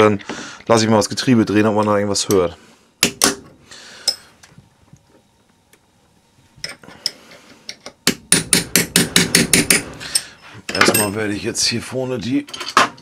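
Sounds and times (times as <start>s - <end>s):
sharp metal-on-metal knocks: 8.0s - 10.0s.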